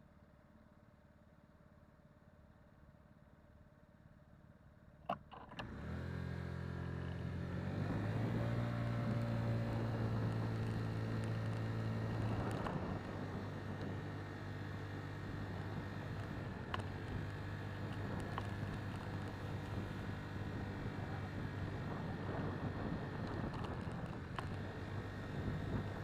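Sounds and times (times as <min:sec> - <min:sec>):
ignition clicks: 0:05.1 - 0:06.0
vehicle engine starting and running: 0:05.1 - 0:26.0.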